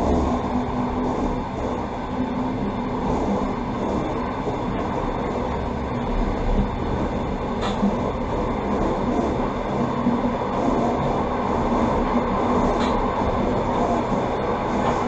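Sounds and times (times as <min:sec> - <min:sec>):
train running noise on board: 0:00.0 - 0:15.0.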